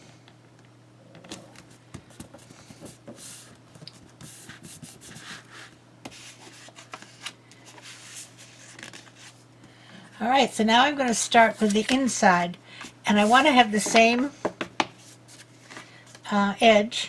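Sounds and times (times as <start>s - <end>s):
paper rustling by hand: 1.6s - 9.4s, 13.1s - 14.2s.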